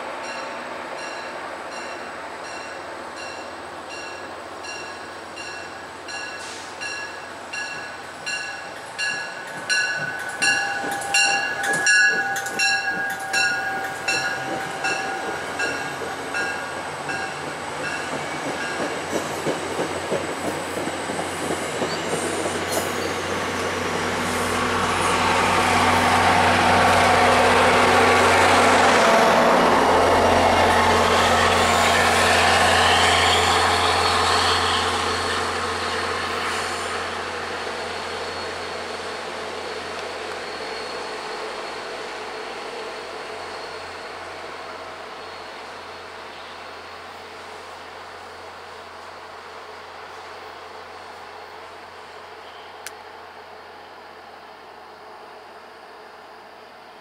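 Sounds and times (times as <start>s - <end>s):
diesel locomotive engine rumble: 0.0s - 57.0s
train bell ringing: 0.2s - 19.0s
wheels rumbling on rails: 1.8s - 42.1s.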